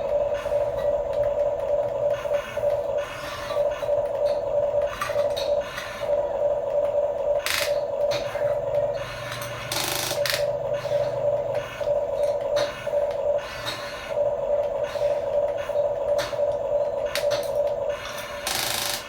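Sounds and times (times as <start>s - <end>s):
toy electric motor whining: 7.4s - 14.2s, 17.1s - 19.0s.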